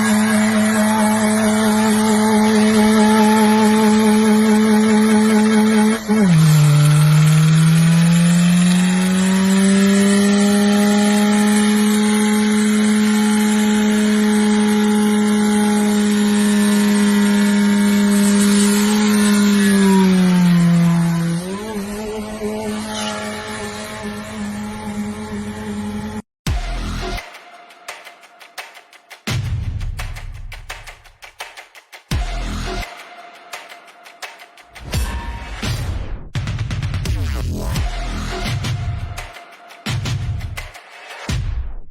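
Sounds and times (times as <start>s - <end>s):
engine at high revs: 0.0s - 26.3s.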